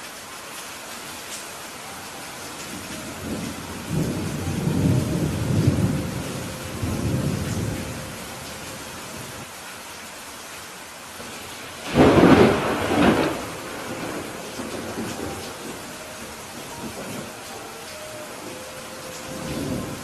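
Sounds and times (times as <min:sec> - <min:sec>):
steady rain hiss: 0:00.0 - 0:20.0
rolling thunder: 0:02.7 - 0:09.4, 0:11.4 - 0:17.5, 0:19.2 - 0:20.0
thunder crack: 0:11.8 - 0:17.3.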